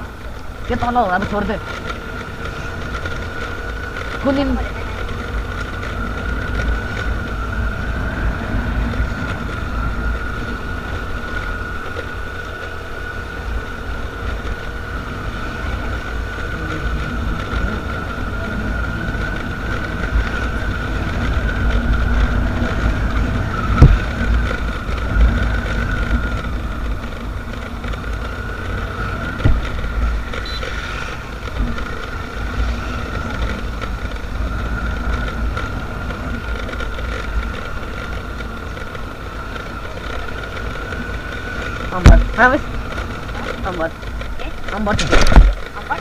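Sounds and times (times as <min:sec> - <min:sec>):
motorcycle running: 0:00.0 - 0:46.0
wind buffeting microphone: 0:00.0 - 0:46.0
sharp thumps: 0:41.7 - 0:45.8.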